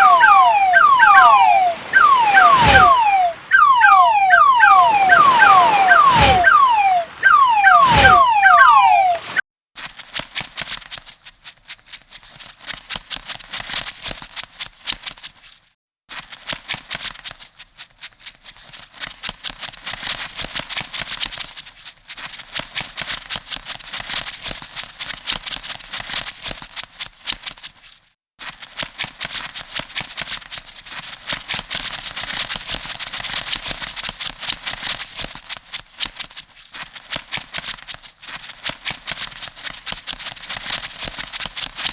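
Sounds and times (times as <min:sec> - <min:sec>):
falling whistled tones: 0:00.0 - 0:09.4.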